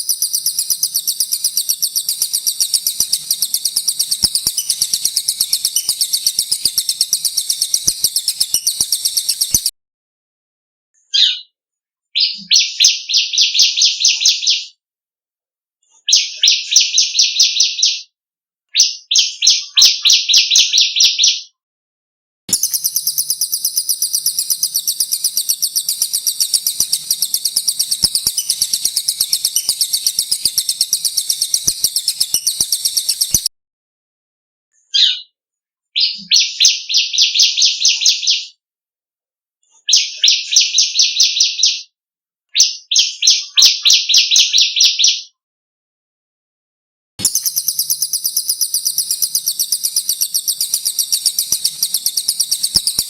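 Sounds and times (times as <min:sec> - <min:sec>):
high buzzy pulsing bird trill: 0:00.0 - 0:09.7, 0:22.5 - 0:33.5, 0:47.2 - 0:53.0
songbirds trilling: 0:00.0 - 0:09.7, 0:22.5 - 0:33.5, 0:47.2 - 0:53.0.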